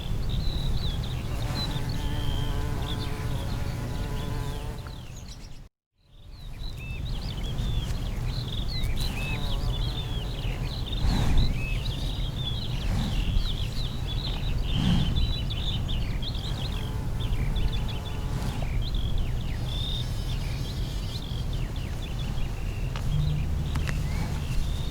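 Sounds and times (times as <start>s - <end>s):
small birds chirping: 0.0s - 24.9s
low outdoor rumble: 21.6s - 24.9s.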